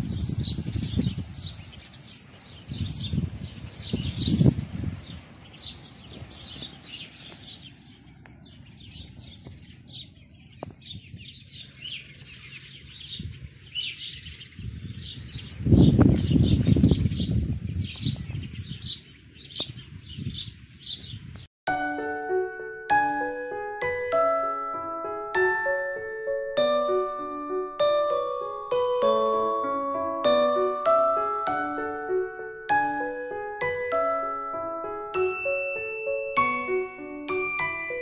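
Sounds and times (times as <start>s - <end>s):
small birds chirping: 0.0s - 21.5s.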